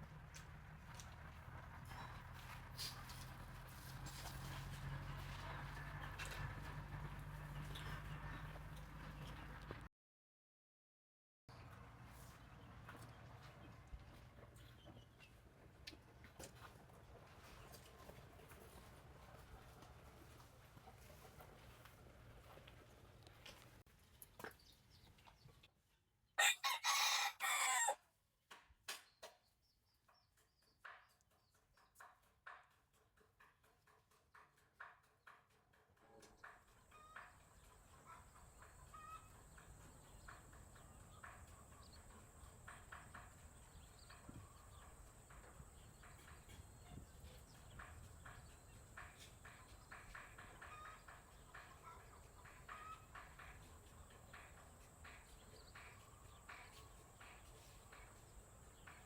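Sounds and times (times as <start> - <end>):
rooster crowing: 26.4 - 28.0
chickens clucking: 36.9 - 42.2, 46.0 - 58.9.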